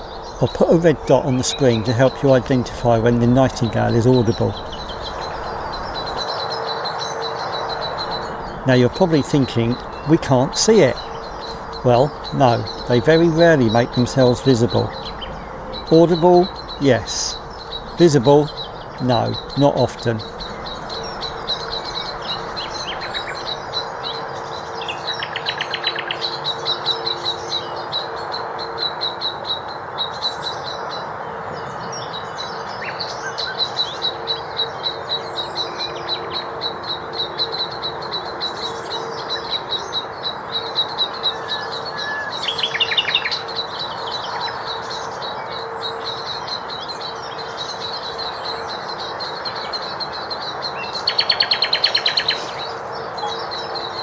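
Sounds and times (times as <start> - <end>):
birdsong: 0.0 - 6.2, 7.6 - 24.1
low industrial hum: 0.0 - 6.2, 7.7 - 23.7
nightingale trills: 0.0 - 6.2, 7.7 - 24.0.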